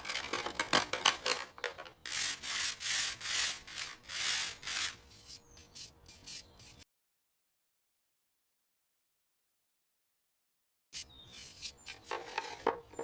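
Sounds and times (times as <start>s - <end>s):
scraping against a can: 11.0s - 13.0s.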